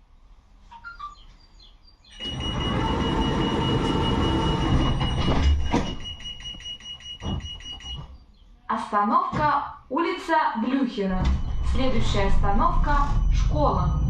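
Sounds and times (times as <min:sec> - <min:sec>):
tram rushing noise: 0:02.2 - 0:06.6, 0:11.1 - 0:14.0.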